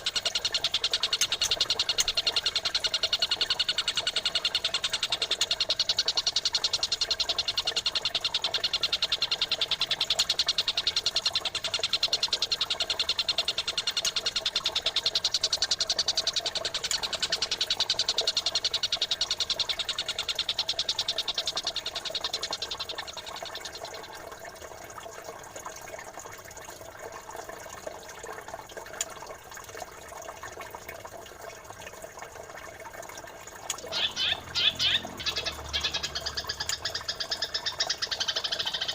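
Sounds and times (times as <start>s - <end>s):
chattering birdsong: 0.0s - 24.2s, 33.7s - 38.9s
babbling running water: 33.1s - 38.9s.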